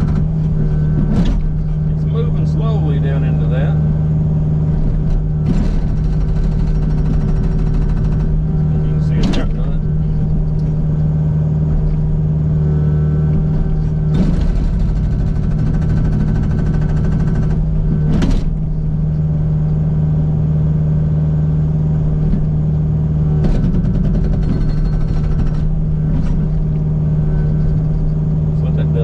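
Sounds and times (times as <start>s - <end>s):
hydraulic breaker hammering rock: 0.0s - 1.7s, 5.4s - 9.8s, 14.1s - 18.6s, 23.4s - 26.5s
diesel engine running: 0.0s - 29.0s.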